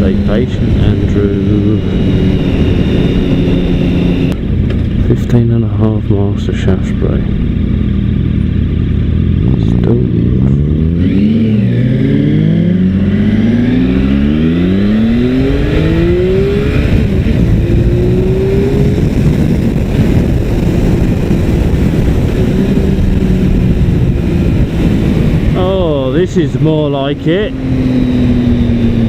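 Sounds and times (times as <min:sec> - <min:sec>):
motorcycle engine accelerating: 0:00.0 - 0:29.0
wind rush: 0:00.0 - 0:29.0.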